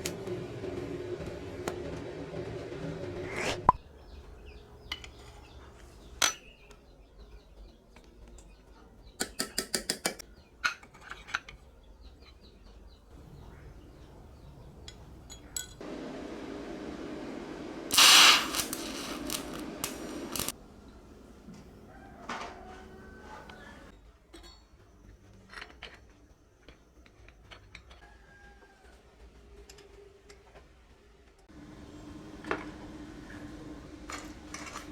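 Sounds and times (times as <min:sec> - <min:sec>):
steady hum: 0:15.8 - 0:20.5
loud hiss-like burst: 0:17.1 - 0:20.5.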